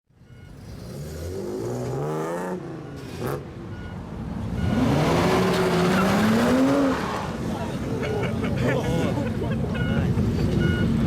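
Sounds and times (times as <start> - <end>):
car engine revving: 4.4 - 7.7.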